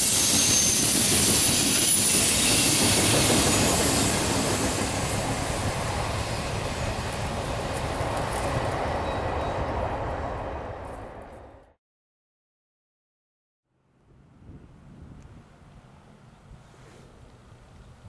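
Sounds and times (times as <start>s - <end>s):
high wheel squeal: 0.0s - 7.8s
freight train wheels on rail: 0.0s - 11.8s.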